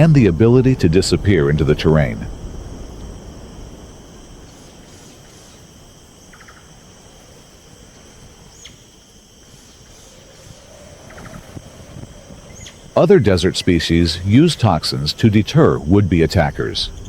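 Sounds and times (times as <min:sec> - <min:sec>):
quick falling call: 0:00.0 - 0:04.9
insect chirps: 0:00.0 - 0:17.0
insect chorus: 0:00.0 - 0:17.0.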